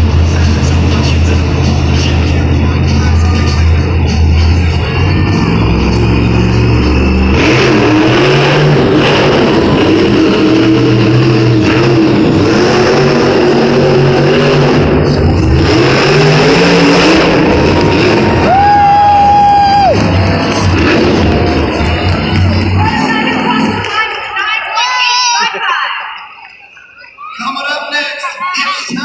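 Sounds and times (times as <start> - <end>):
monster truck engine revving: 0.0 - 24.5.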